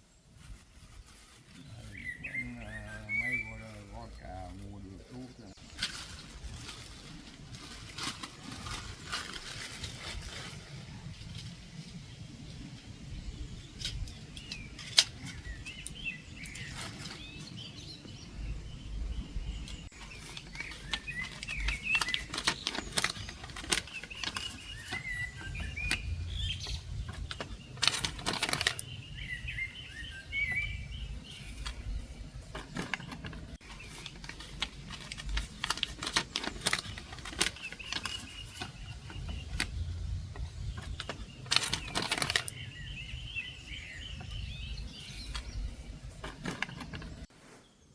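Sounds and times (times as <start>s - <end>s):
small birds chirping: 0.0s - 47.9s
sharp clicks and knocks: 19.7s - 29.0s, 31.5s - 42.6s.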